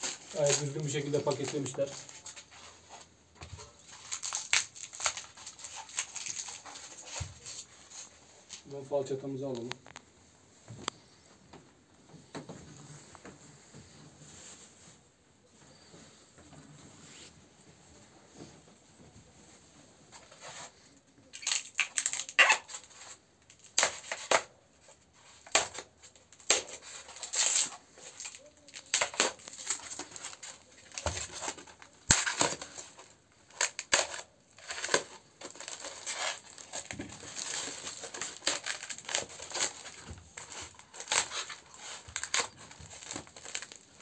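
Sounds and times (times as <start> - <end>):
packaging crinkling and tearing: 0.0 - 8.7, 20.2 - 44.0.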